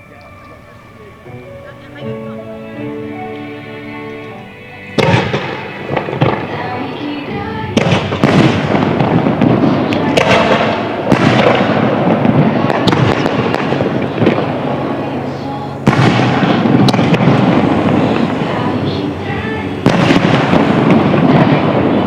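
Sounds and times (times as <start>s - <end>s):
music playing: 0.0s - 22.0s
fireworks bursting and crackling: 4.8s - 22.0s.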